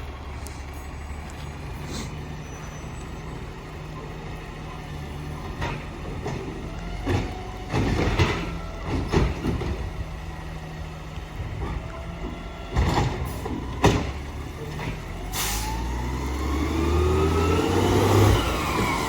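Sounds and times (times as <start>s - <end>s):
garbage truck engine running: 0.0s - 19.0s.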